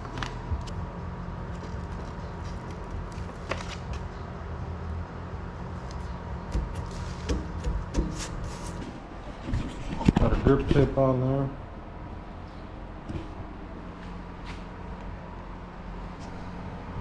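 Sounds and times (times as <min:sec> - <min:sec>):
steady low hum: 0:00.0 - 0:17.0
grip tape taps and rubbing: 0:05.9 - 0:08.9.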